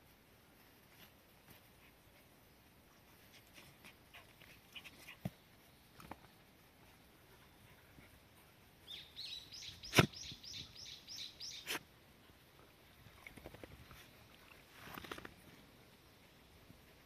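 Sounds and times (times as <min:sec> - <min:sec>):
soft rustle: 0:00.0 - 0:10.6, 0:11.6 - 0:17.0
bird chirping: 0:08.8 - 0:11.7.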